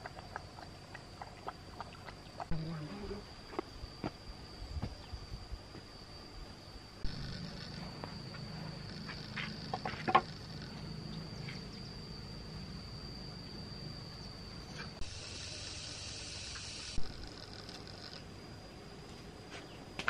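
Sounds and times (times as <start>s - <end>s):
insects buzzing: 0.0s - 20.0s.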